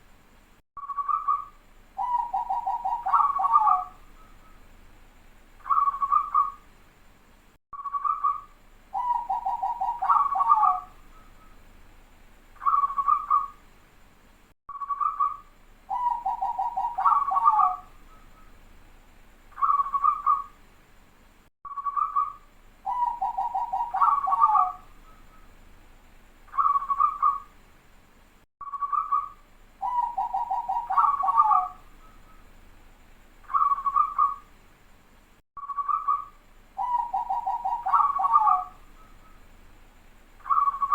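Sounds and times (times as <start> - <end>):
dove cooing song: 0.9 - 4.6, 5.6 - 6.6, 7.9 - 11.6, 12.6 - 13.6, 14.9 - 18.5, 19.6 - 20.6, 21.8 - 25.5, 26.5 - 27.5, 28.8 - 32.5, 33.5 - 34.5, 35.7 - 39.4, 40.4 - 40.9.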